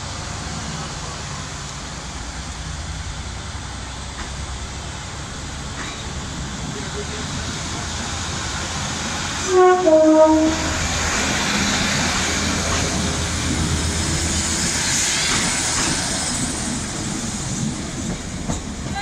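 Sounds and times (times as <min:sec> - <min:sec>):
train engine and wheels rumbling: 0:00.0 - 0:19.0
train two-tone horn: 0:09.4 - 0:10.9.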